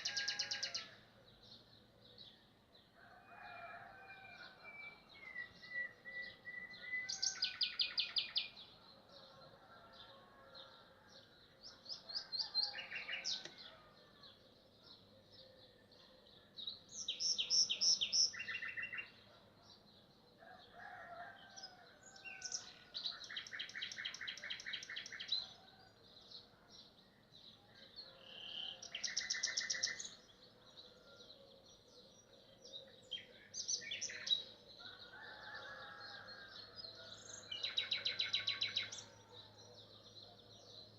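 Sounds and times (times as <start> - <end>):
nightingale singing: 4.7 - 8.6, 16.7 - 19.2, 28.0 - 30.6, 31.4 - 34.6.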